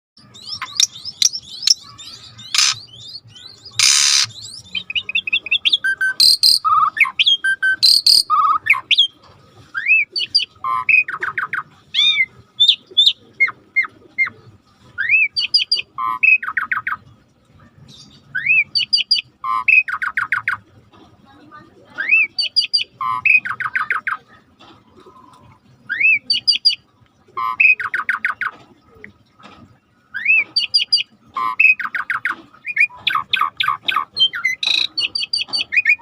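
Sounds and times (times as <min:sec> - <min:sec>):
starling singing: 0:00.2 - 0:09.1, 0:30.1 - 0:36.0
harsh bird calls: 0:00.2 - 0:17.0, 0:30.1 - 0:36.0.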